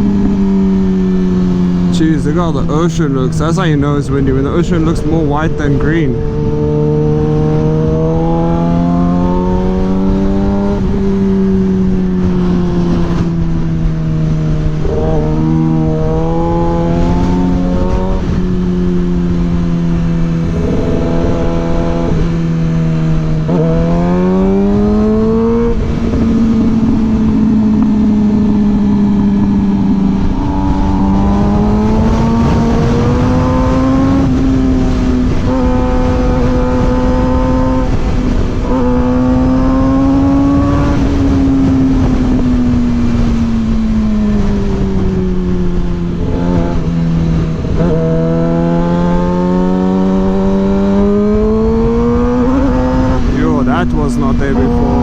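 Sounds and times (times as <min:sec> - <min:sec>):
motorcycle engine accelerating: 0:00.0 - 0:55.0
wind rushing over microphone: 0:00.0 - 0:55.0.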